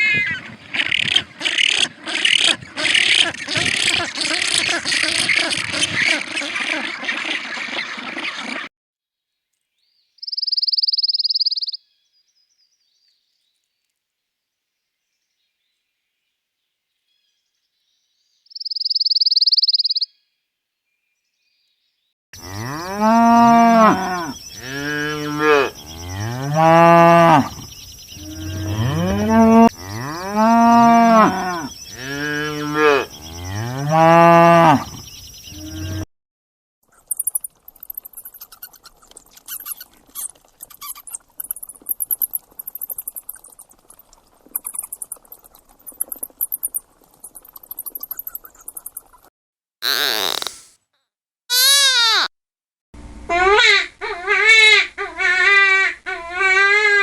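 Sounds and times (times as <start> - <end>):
cattle mooing: 22.4 - 27.5, 28.3 - 34.9.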